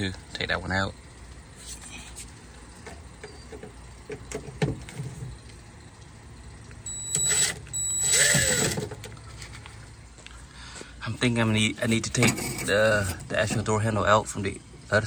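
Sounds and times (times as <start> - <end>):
power driver whining: 6.6 - 9.8.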